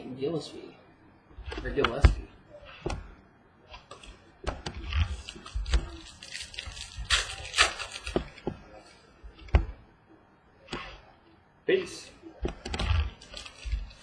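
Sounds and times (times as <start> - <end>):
cards rustling: 3.8 - 9.4, 11.8 - 14.0.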